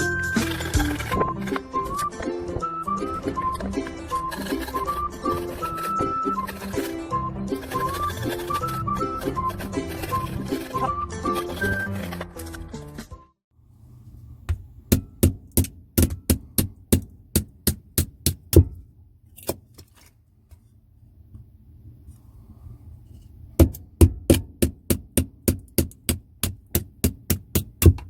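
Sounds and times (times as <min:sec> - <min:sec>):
tool blows on firewood: 0:00.0 - 0:12.0.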